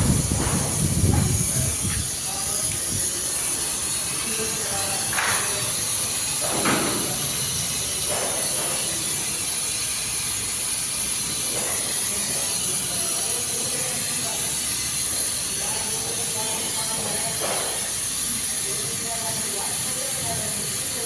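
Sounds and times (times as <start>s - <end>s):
brazing torch flame hissing: 0.0s - 21.0s.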